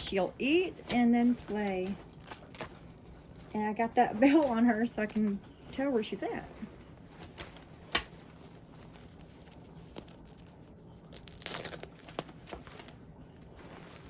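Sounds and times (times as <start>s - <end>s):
plastic packaging crinkling: 6.5s - 14.0s.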